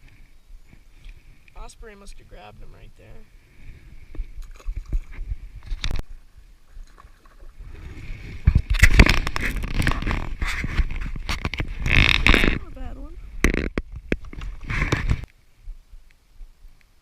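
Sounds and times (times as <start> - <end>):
knocks and scraping on kayak: 6.7 - 12.8, 13.4 - 15.3.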